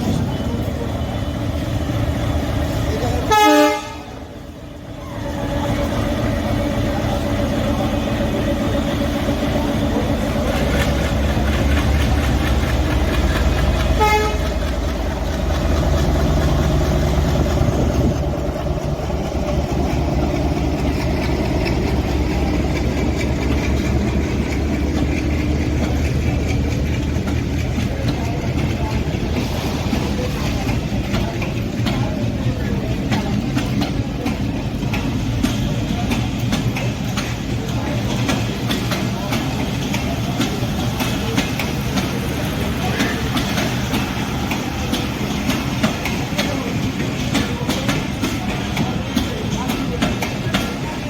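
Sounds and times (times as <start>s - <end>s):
train engine rumble: 0.0s - 51.0s
train horn: 3.3s - 4.2s, 13.9s - 14.7s.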